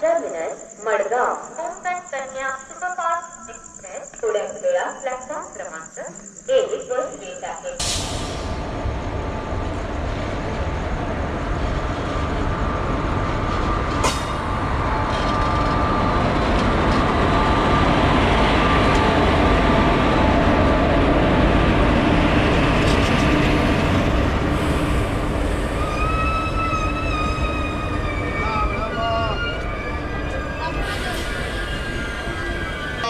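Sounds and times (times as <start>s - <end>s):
train wheels rumbling on rails: 7.8s - 33.0s.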